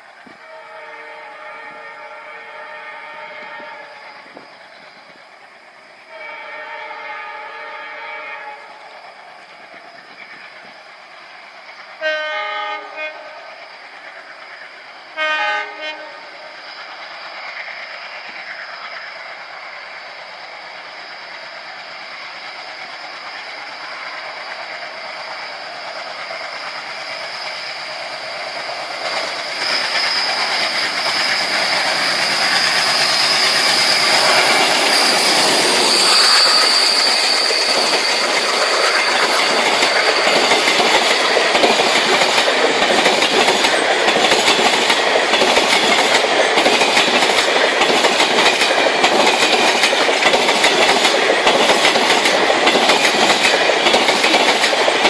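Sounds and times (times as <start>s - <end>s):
train approaching: 0.0s - 55.0s
train wheels clattering on rails: 20.8s - 55.0s
high whine: 25.5s - 41.6s.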